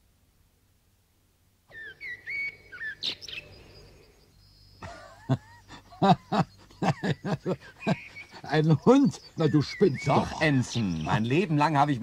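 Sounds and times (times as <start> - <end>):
birds chirping and whistling: 1.7 - 12.0
voices: 4.8 - 12.0.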